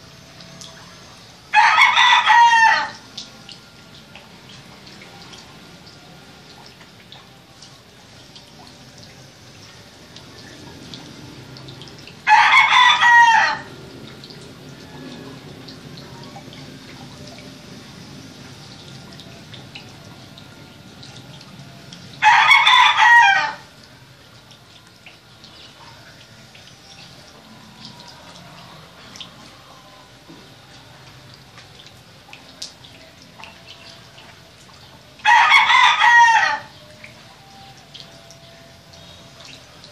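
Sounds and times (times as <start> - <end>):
rooster crowing: 1.5 - 3.0, 12.2 - 13.8, 22.2 - 23.7, 35.2 - 36.8.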